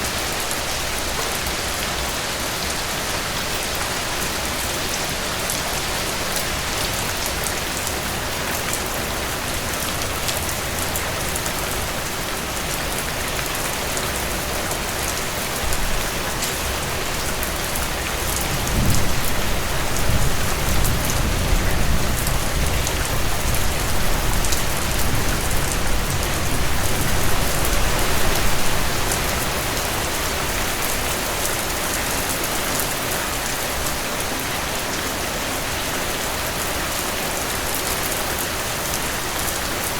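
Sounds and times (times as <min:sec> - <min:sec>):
heavy rain on a porch: 0:00.0 - 0:39.9
distant thunder rumbling: 0:18.5 - 0:28.6.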